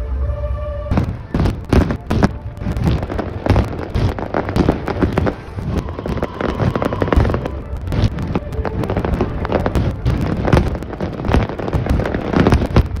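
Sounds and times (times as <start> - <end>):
fireworks bangs and crackles: 0.9 - 13.0.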